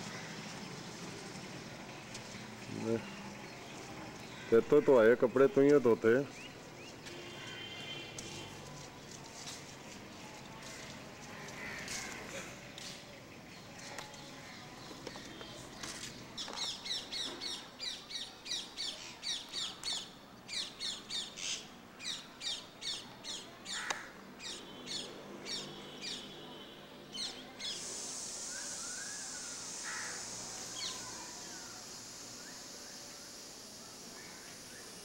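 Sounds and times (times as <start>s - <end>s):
steady high hiss: 27.2s - 35.0s.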